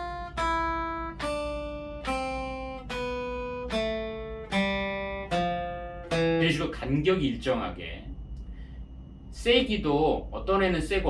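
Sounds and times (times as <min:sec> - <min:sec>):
acoustic guitar plucking scale: 0:00.0 - 0:08.6.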